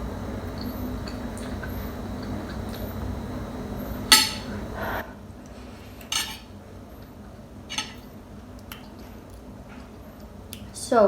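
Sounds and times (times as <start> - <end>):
dishes and tableware clinking: 4.1 - 4.7, 6.1 - 6.5, 7.7 - 8.1.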